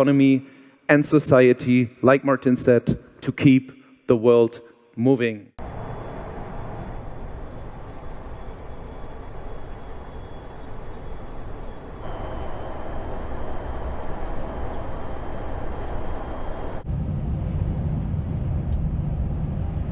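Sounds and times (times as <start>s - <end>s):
vehicle running rumble and hiss: 5.6s - 16.8s.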